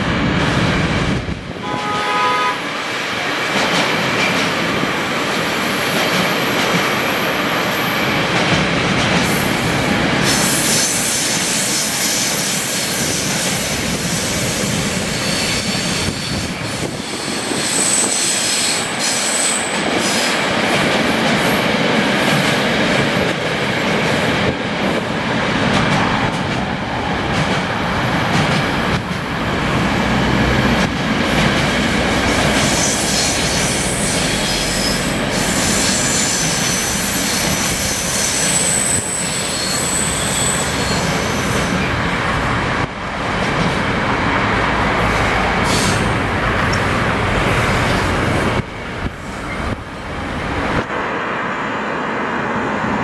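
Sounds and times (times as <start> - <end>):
train wheels rumbling and rattling: 2.8 - 51.2
high-pitched wheel squeals: 32.7 - 41.5.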